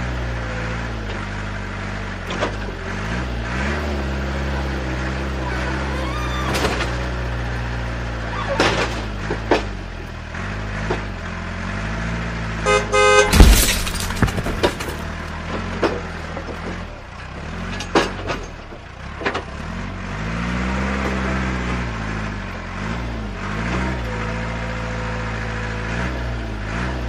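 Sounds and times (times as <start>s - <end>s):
horn honking: 12.6s - 13.7s
sharp clicks and knocks: 13.4s - 16.0s.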